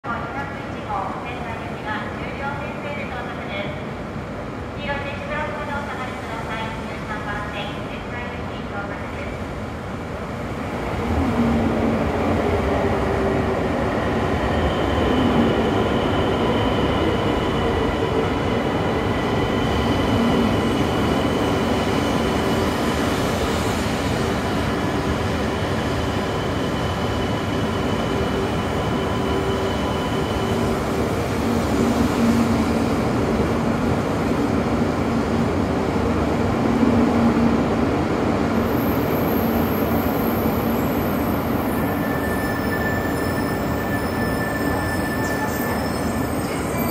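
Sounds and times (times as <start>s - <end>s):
train hum and rush: 0.0s - 46.9s.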